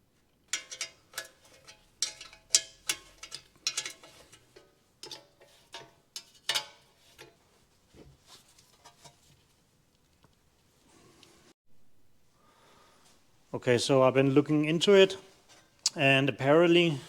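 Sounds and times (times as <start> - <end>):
metallic clicks and clinks: 0.5 - 7.3.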